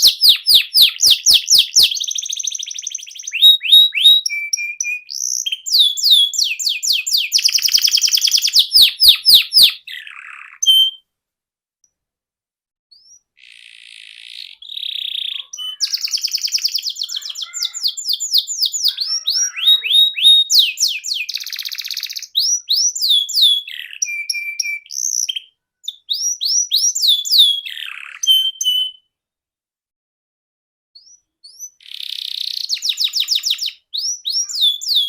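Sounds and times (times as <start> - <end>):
canary singing: 0.0 - 11.0, 12.9 - 29.0, 31.0 - 35.0.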